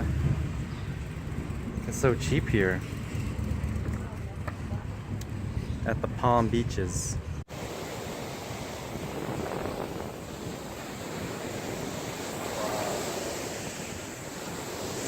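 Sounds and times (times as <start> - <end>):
wind on microphone: 0.0 - 15.0
ocean surf washing on beach: 7.5 - 15.0.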